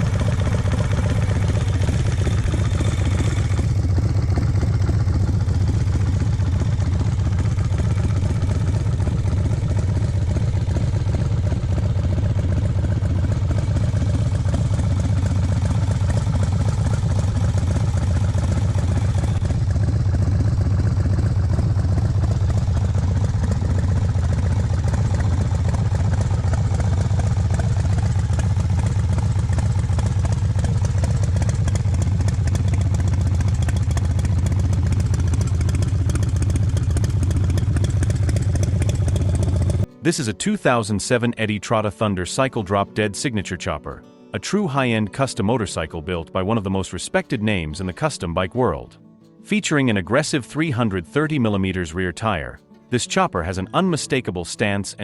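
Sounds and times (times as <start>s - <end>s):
motorcycle engine idling: 0.0s - 40.0s.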